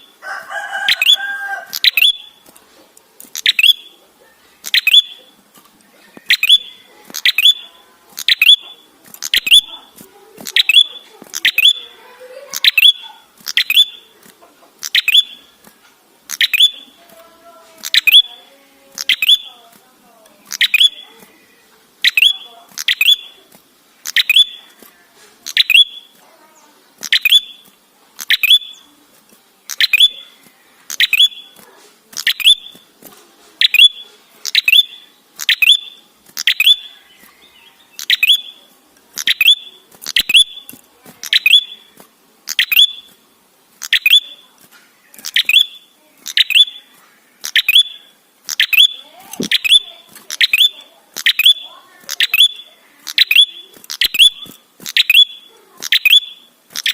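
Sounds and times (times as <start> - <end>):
tailorbird calling: 3.3 - 5.4, 6.2 - 15.6, 17.8 - 19.7, 20.4 - 24.8, 29.7 - 31.6, 32.2 - 32.8, 45.2 - 56.9.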